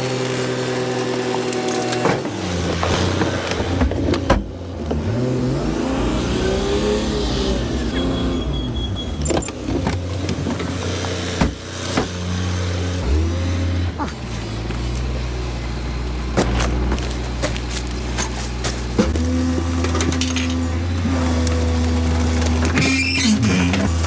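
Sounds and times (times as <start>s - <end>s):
garbage truck engine revving: 0.0s - 24.0s
rubbish being crushed: 0.8s - 6.0s, 16.1s - 24.0s.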